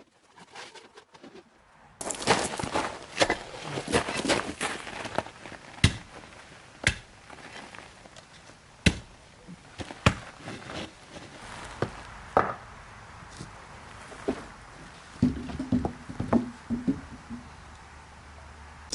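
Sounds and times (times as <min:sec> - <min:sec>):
hard objects knocking and clacking: 0:15.2 - 0:17.5.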